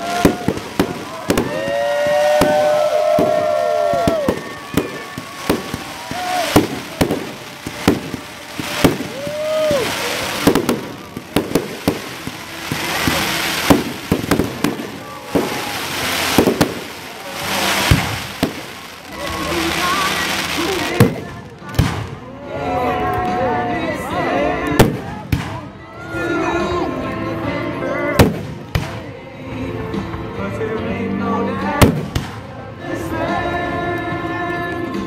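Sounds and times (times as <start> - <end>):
fireworks whistling: 0.0 - 22.2
fireworks bursting: 0.0 - 22.3, 24.6 - 25.8, 28.1 - 29.1, 31.7 - 33.4.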